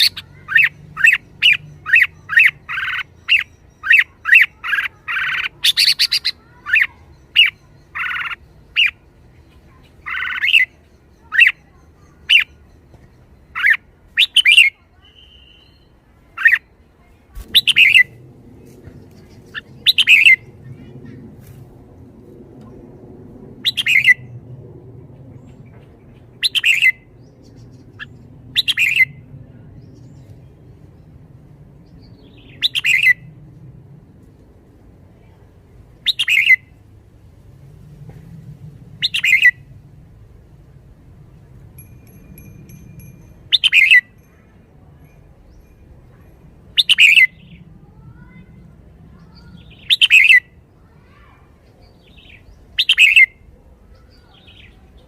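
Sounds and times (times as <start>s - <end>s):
bird chattering calls: 0.0s - 9.0s, 9.7s - 12.8s, 13.5s - 16.6s, 17.5s - 18.2s, 19.1s - 21.2s, 23.6s - 24.2s, 26.1s - 27.0s, 39.0s - 39.6s, 43.5s - 44.1s, 46.8s - 47.6s, 49.3s - 50.5s, 52.1s - 53.4s
low background rumble: 0.0s - 55.0s.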